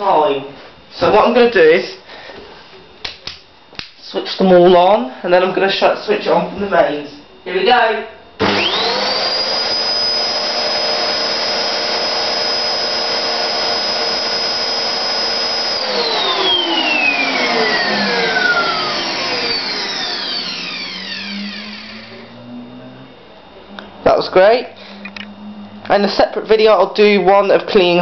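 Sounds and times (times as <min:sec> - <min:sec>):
vacuum cleaners whining: 0:08.4 - 0:26.8.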